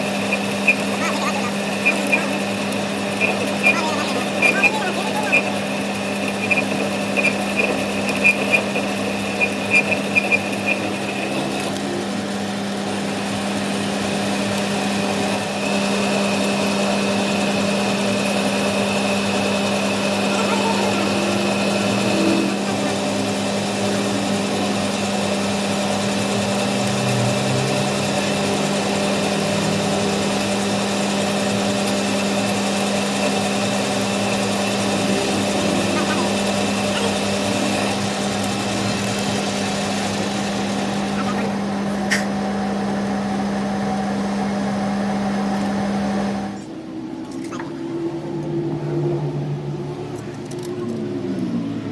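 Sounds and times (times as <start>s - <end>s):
electric motor humming: 0.0s - 51.8s.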